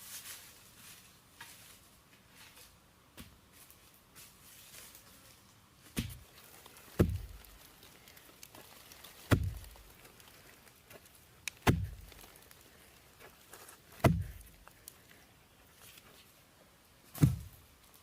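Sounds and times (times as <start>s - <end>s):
heavy blows with ringing thud: 14.0s - 14.4s.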